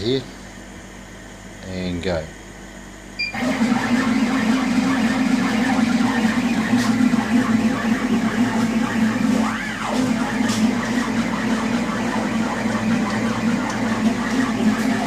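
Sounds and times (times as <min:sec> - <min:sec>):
stepper motors whirring: 0:03.4 - 0:15.0
laser head rattling: 0:06.8 - 0:15.0.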